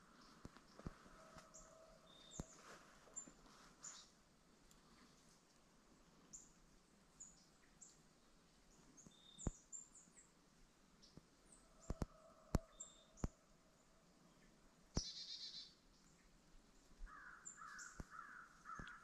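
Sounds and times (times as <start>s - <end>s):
small birds chirping and whistling: 15.0s - 15.7s.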